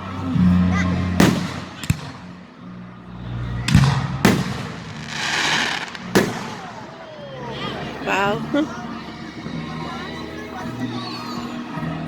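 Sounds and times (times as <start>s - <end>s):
fireworks booming: 3.7s - 7.0s
fireworks crackling: 3.7s - 8.5s.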